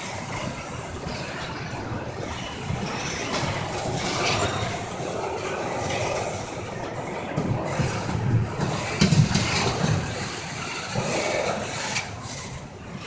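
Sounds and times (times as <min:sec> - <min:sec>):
freight train rumbling by: 0:00.0 - 0:13.0.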